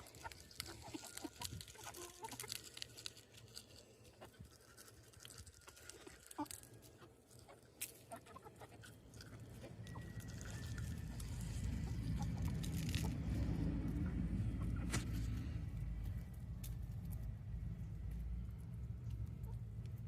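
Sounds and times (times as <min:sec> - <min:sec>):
chicks pecking clicks and taps: 0:00.0 - 0:20.0
low rumble: 0:09.6 - 0:20.0.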